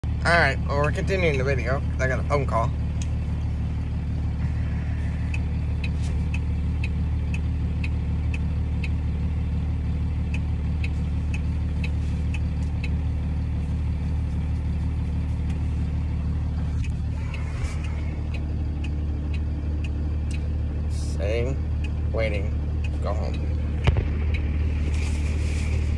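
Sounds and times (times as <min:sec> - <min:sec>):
truck engine idling: 0:00.0 - 0:25.9
light regular ticking: 0:00.6 - 0:25.9.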